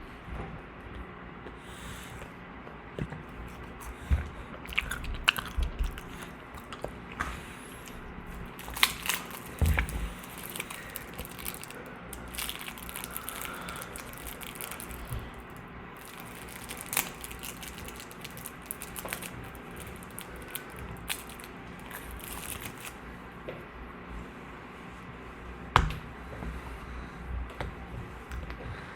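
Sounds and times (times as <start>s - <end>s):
crinkling and crunching: 2.9s - 23.2s.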